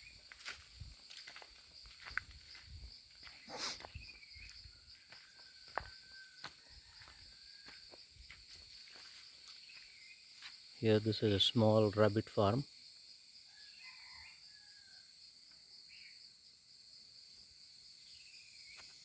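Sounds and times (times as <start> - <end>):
soft footsteps on a path: 0.0 - 10.8.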